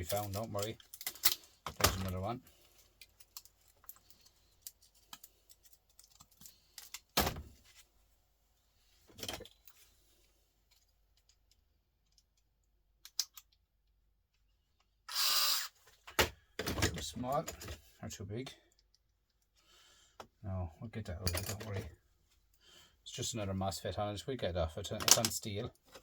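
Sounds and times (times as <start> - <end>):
pliers clicking on electronic parts: 13.0 - 13.6.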